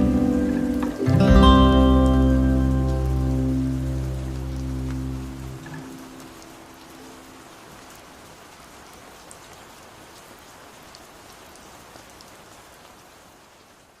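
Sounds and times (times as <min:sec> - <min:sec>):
raindrops ticking sharply: 0:00.0 - 0:10.3
steady rain falling: 0:00.0 - 0:14.0.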